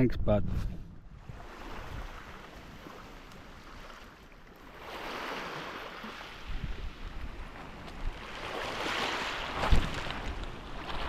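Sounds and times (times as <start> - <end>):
wind on microphone: 0.0 - 2.9, 6.3 - 11.0
water lapping around kayak: 0.9 - 11.0.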